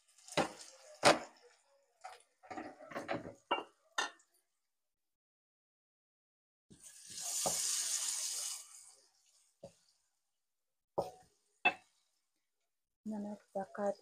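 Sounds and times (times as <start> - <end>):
chicken sizzling in a frying pan: 0.0 - 1.7, 6.7 - 9.4.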